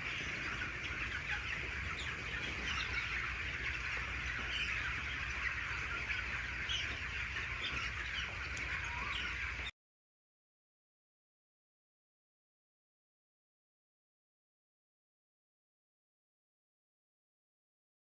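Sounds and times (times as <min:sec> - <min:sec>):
chicks peeping and chirping: 0:00.0 - 0:09.7.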